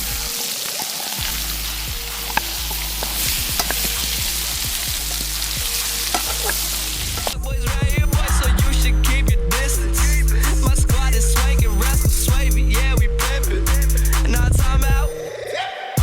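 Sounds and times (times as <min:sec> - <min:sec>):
chicken sizzling in a skillet: 0:00.0 - 0:07.4
music: 0:00.0 - 0:16.0
fat popping: 0:01.2 - 0:07.4.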